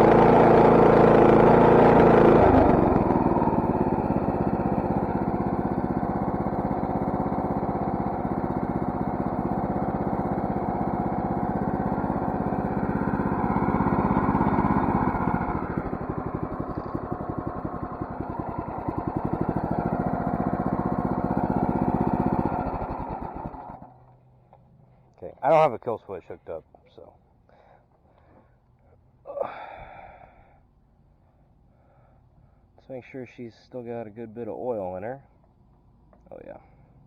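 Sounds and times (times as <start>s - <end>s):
small engine running: 0.0s - 25.0s.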